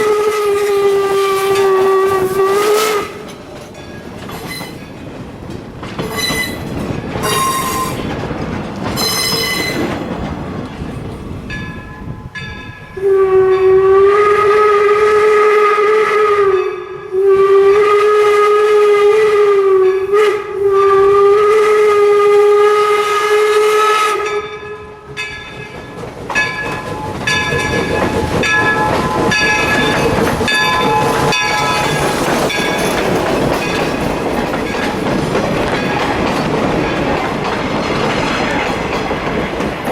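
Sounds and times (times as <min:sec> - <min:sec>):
steam locomotive whistle blasts: 0:00.0 - 0:03.3, 0:07.2 - 0:08.0, 0:12.9 - 0:25.1
train running: 0:00.0 - 0:39.9
bell ringing: 0:24.4 - 0:33.8.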